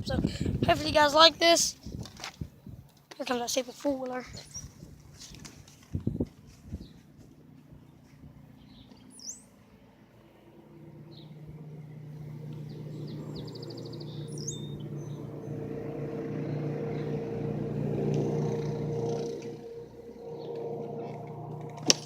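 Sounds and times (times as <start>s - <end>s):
birds chirping: 2.6s - 5.4s, 6.0s - 9.7s, 10.5s - 22.0s
atv engine approaching: 4.4s - 22.0s.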